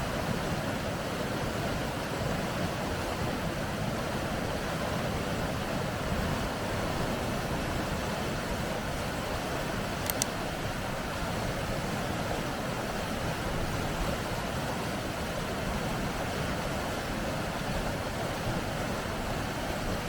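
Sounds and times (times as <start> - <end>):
water rushing through rapids: 0.0 - 20.0.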